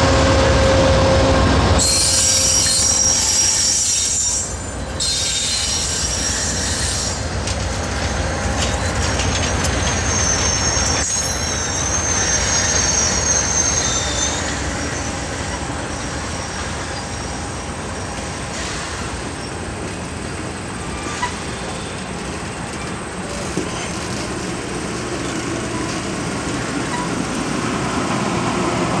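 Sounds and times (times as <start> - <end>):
train rumbling past: 0.0 - 29.0
steel wheels squealing: 1.8 - 19.6, 20.8 - 24.1, 26.8 - 27.2.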